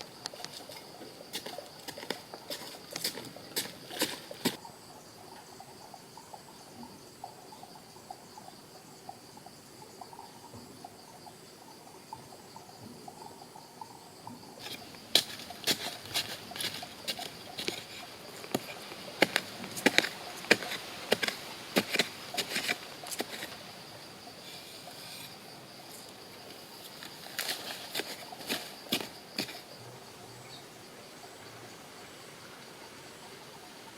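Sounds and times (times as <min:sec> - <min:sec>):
insects buzzing: 0:00.0 - 0:33.9.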